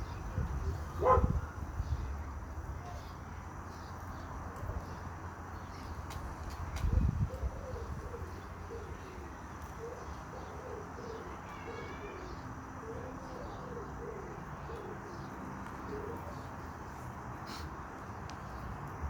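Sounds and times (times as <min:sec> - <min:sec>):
bird cooing: 0:07.3 - 0:16.5.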